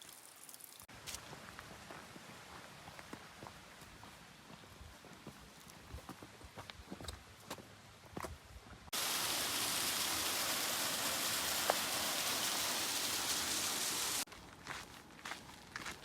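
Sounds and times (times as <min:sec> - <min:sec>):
mountain stream rushing: 0:08.9 - 0:14.3.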